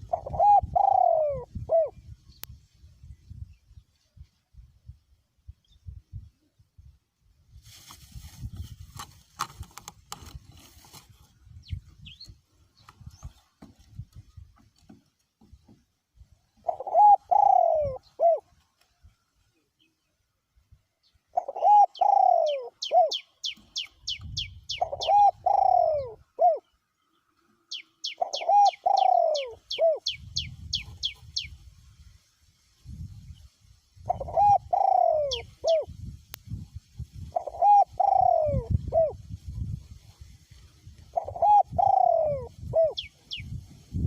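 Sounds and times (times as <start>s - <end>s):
dove cooing: 0.0s - 2.0s, 16.6s - 18.5s, 21.3s - 23.6s, 24.7s - 26.7s, 28.0s - 30.3s, 34.0s - 35.9s, 37.3s - 39.2s, 41.1s - 43.4s.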